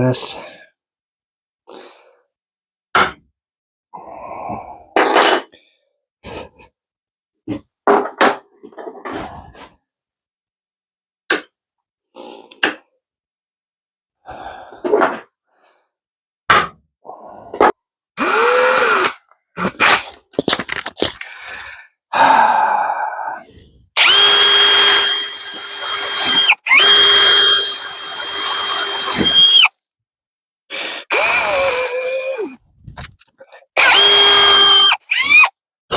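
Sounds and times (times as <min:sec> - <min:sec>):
electric drill running: 0:18.2 - 0:19.1, 0:24.0 - 0:29.7, 0:31.1 - 0:32.6, 0:33.8 - 0:35.5.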